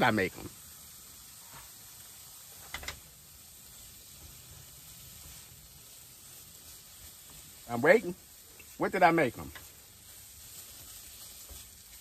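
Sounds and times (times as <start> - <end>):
cauliflower sizzling in a frying pan: 0.0 - 12.0.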